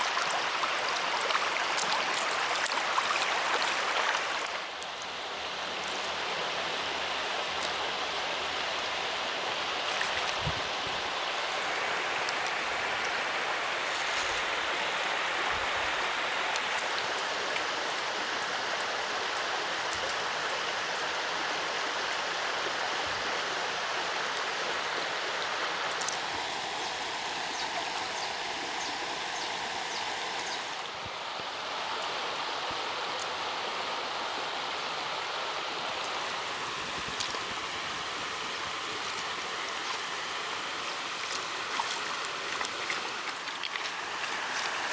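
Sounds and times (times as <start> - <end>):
water flowing: 0.0 - 44.9
faint knocks and splashes: 41.1 - 44.9.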